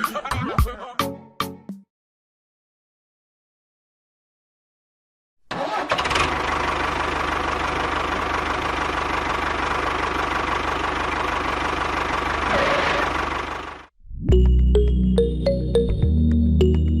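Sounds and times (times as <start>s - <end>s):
engine idling: 5.5s - 13.9s.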